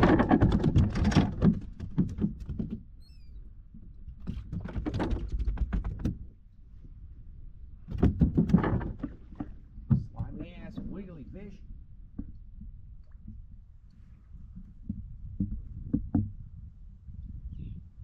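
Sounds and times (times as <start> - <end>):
fish flopping against plastic: 0.0 - 2.8, 4.2 - 6.3, 7.9 - 10.4.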